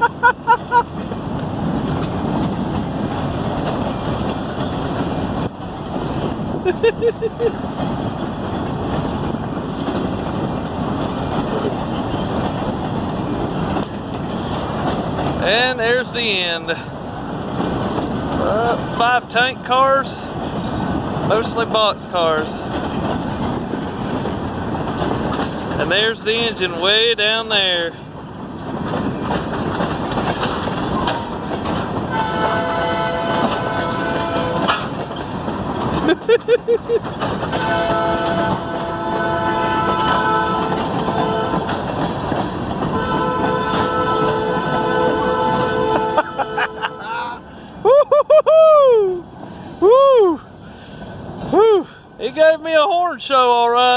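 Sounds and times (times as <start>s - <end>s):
freight cars rolling on rails: 0.0s - 53.9s
locomotive air horn: 32.1s - 35.0s, 37.5s - 41.9s, 42.8s - 47.4s.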